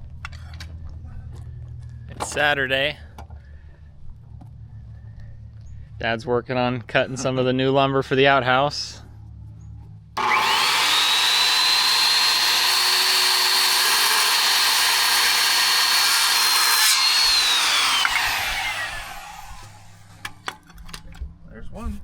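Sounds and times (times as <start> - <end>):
electric saw cutting wood: 10.2 - 20.4.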